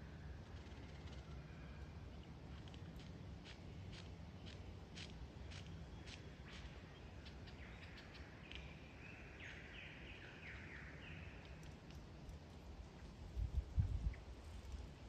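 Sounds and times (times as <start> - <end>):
lyrebird singing: 5.4 - 11.7.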